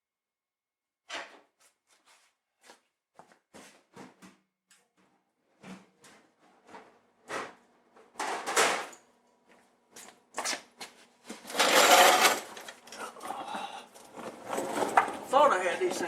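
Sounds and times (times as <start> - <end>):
scraping and rustling: 11.2 - 13.1, 14.0 - 16.0.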